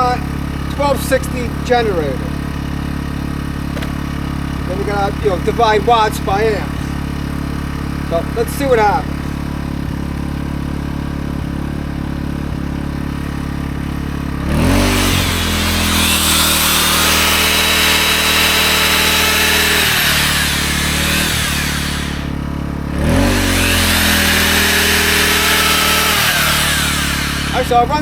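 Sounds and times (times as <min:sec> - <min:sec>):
generator engine running: 0:00.0 - 0:28.0
belt sander running: 0:13.3 - 0:28.0.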